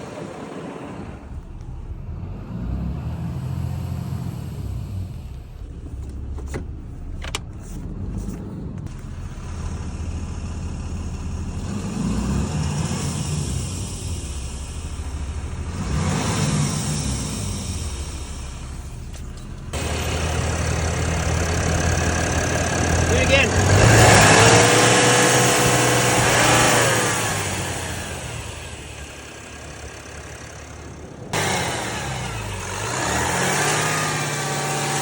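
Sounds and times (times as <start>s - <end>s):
pickup truck engine rumble: 0.0s - 35.0s
hiss: 12.3s - 18.6s.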